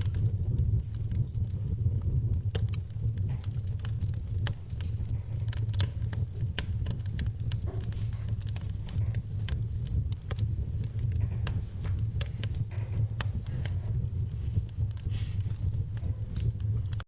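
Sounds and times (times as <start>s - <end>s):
wood fire crackling: 0.0s - 17.0s
rain hissing: 10.6s - 16.6s.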